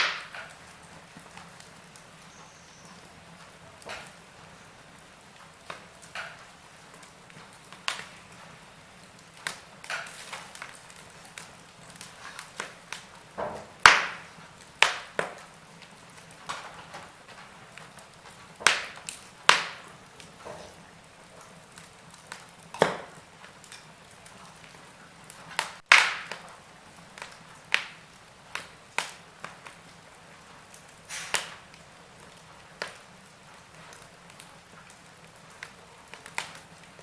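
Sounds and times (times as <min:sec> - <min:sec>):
faint fire hiss: 0:00.0 - 0:37.0
wood fire crackling and popping: 0:00.0 - 0:37.0.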